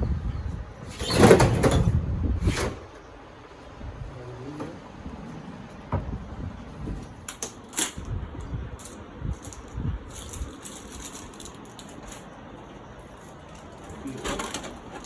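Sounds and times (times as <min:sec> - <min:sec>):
dull low thumps: 0:05.8 - 0:07.2.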